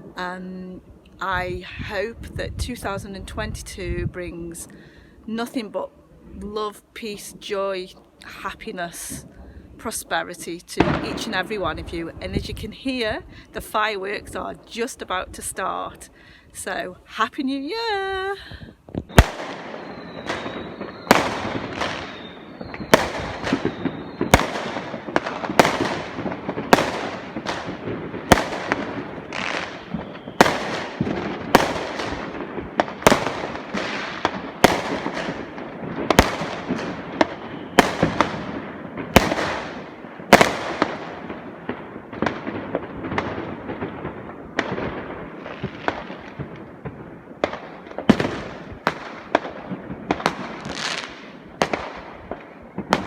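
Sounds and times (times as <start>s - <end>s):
fireworks bangs: 9.9s - 13.8s, 18.9s - 53.0s.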